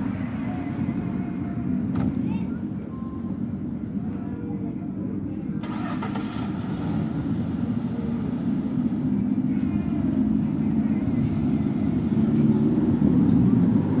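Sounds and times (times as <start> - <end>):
vehicle engine rumbling: 3.2 - 14.0.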